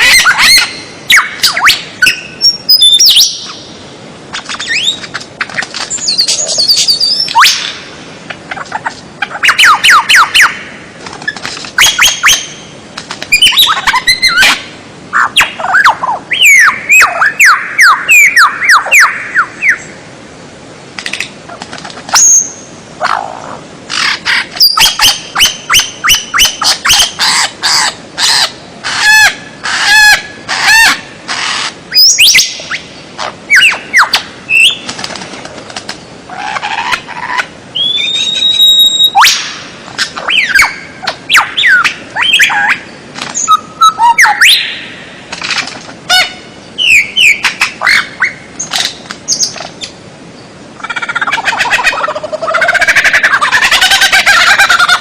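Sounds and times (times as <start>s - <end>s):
songbird calls: 0.0s - 20.1s, 21.0s - 35.0s, 35.8s - 45.3s, 46.0s - 55.0s.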